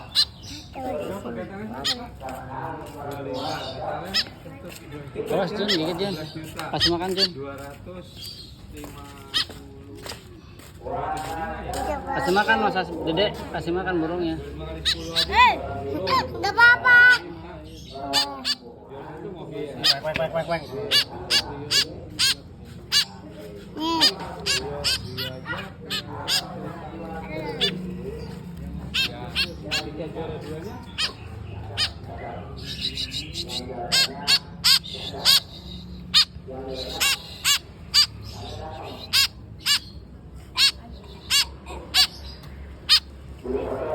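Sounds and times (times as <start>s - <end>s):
bird giving harsh calls: 0.0s - 2.4s, 3.2s - 9.6s, 14.3s - 18.7s, 19.7s - 43.2s.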